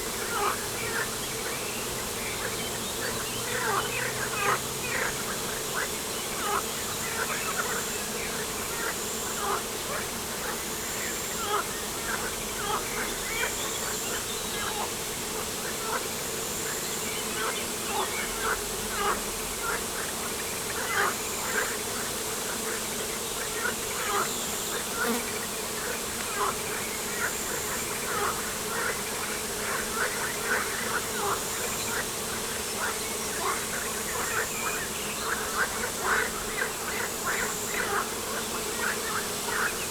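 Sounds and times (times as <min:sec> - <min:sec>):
insect-like buzz: 0:00.0 - 0:39.9.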